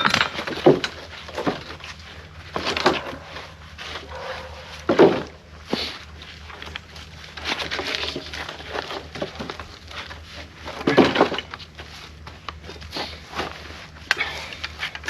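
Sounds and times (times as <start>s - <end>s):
firewood logs knocking together: 0.0s - 1.8s, 2.5s - 3.4s, 4.2s - 5.9s, 6.6s - 11.8s.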